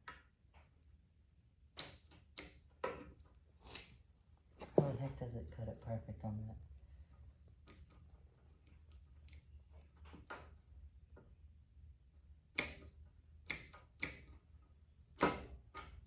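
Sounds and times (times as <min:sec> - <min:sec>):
sharp clicks and snaps: 0:08.6 - 0:09.5, 0:12.5 - 0:14.3.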